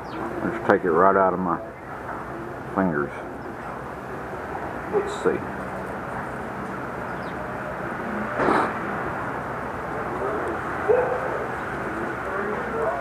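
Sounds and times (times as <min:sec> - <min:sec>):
outdoor background hum: 0:00.0 - 0:13.0.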